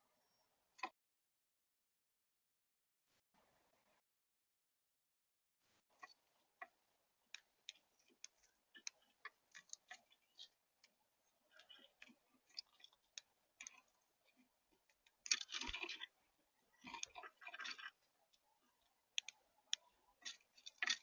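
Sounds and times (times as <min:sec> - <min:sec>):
birds pecking and cracking seeds: 0:07.4 - 0:21.0.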